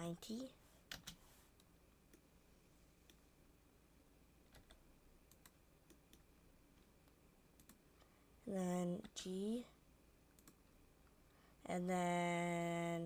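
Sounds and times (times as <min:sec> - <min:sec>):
computer keys and mouse clicking: 0:00.9 - 0:02.3, 0:04.5 - 0:06.3, 0:07.0 - 0:07.8, 0:10.3 - 0:10.8.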